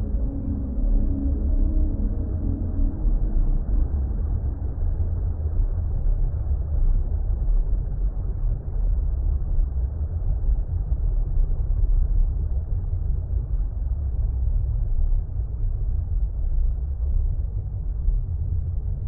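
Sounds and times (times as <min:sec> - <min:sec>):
held ambient music tone: 0:00.0 - 0:11.9
deep underwater water rumble: 0:00.0 - 0:19.0.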